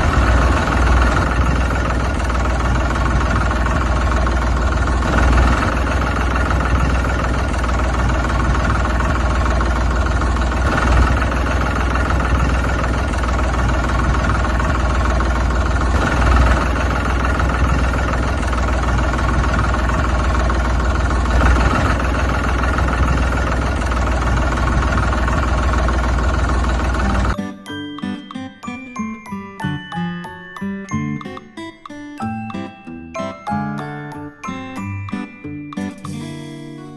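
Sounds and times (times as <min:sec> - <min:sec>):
tractor engine idling: 0:00.0 - 0:27.4.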